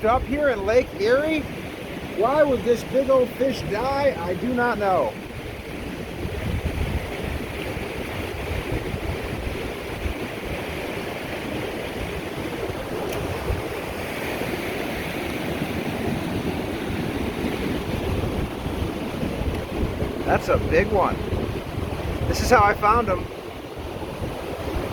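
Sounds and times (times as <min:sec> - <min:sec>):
waves washing onto shore: 0:00.0 - 0:24.9
wind rumbling on microphone: 0:00.0 - 0:24.9.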